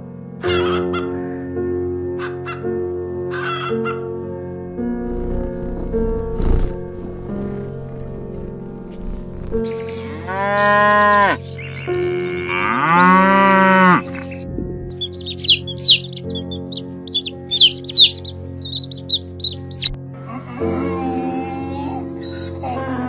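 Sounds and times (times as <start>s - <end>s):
ducklings peeping: 15.0s - 20.0s.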